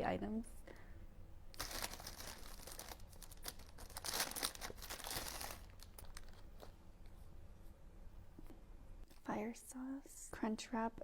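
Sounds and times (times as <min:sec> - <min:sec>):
paper packaging crinkling: 0:01.5 - 0:06.8.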